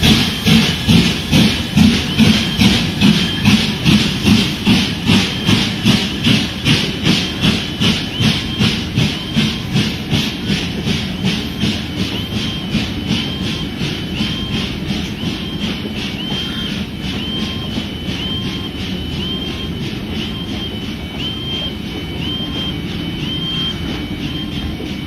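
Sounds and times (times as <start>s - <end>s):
steam locomotive chuffing: 0.0s - 25.0s.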